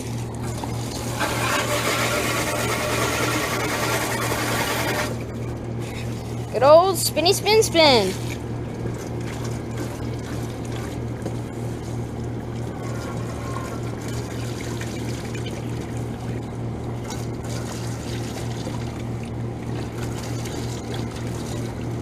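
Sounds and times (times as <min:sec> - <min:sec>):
steady low hum: 0:00.0 - 0:22.0
water pouring and trickling: 0:00.0 - 0:22.0.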